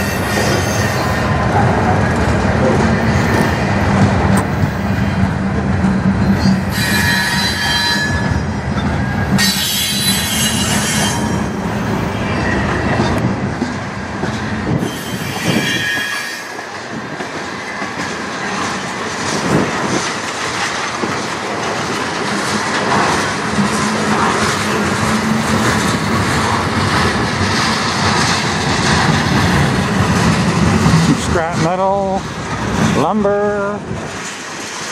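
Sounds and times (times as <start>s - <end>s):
freight train wheels rumbling: 0.0s - 34.9s
high-pitched wheel squeal: 6.4s - 8.4s, 9.0s - 11.4s, 14.8s - 16.6s
wheels clicking over rail joints: 12.8s - 31.8s.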